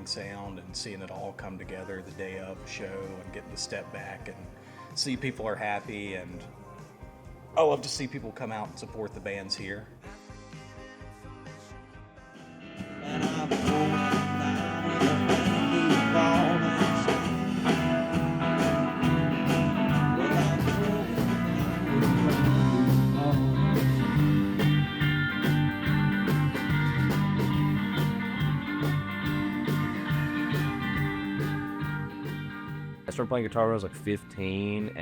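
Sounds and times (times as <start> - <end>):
band music with guitar: 10.3 - 35.0.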